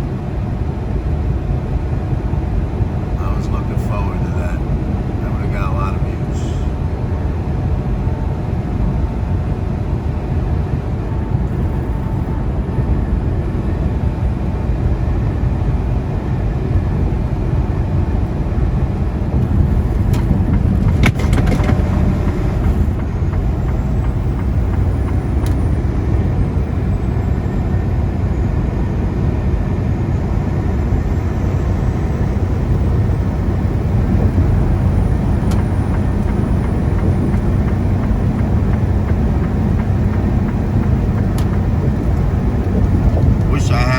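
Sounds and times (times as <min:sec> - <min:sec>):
road noise: 0:00.0 - 0:43.9
truck diesel engine drone: 0:00.0 - 0:43.9
rush of noise: 0:03.0 - 0:07.0, 0:35.5 - 0:43.9.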